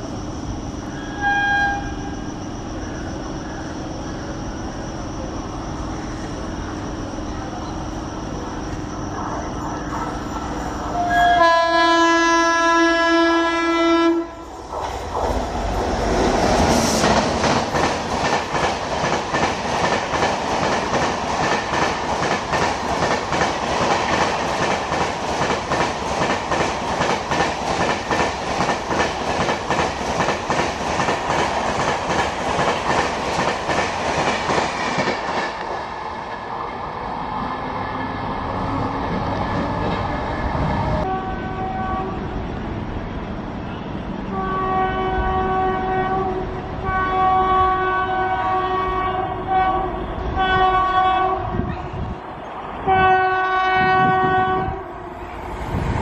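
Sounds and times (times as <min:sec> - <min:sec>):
electric locomotive humming: 0:00.0 - 0:56.0
train air horn blast: 0:00.9 - 0:02.2, 0:10.9 - 0:14.5, 0:40.9 - 0:42.2, 0:43.8 - 0:51.7, 0:52.8 - 0:55.1.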